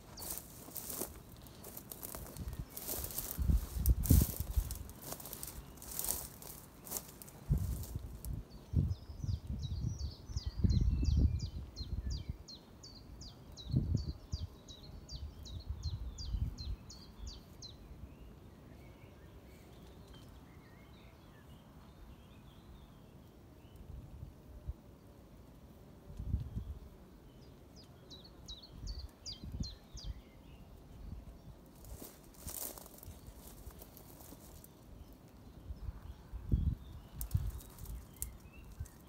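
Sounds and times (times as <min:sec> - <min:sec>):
wind rumbling on microphone: 0:00.0 - 0:12.5, 0:13.6 - 0:14.5, 0:26.1 - 0:27.0, 0:35.6 - 0:39.0
small bird singing: 0:00.0 - 0:23.9, 0:26.3 - 0:39.0.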